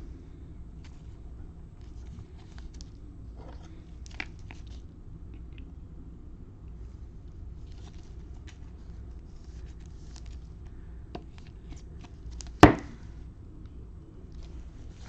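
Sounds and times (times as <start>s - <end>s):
cards rustling in plastic sleeves: 0.8s - 3.0s, 7.6s - 12.7s.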